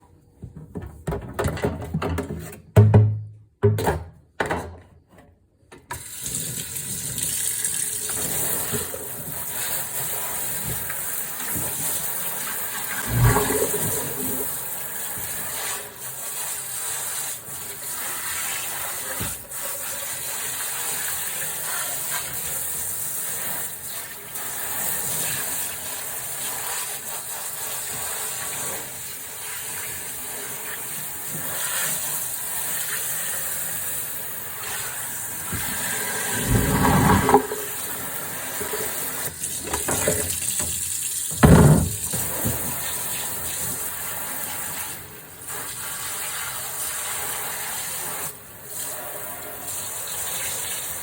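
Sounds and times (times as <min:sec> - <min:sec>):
tap water running into sink: 0:05.9 - 0:22.8, 0:34.4 - 0:44.0
dishes knocking: 0:41.4 - 0:42.6.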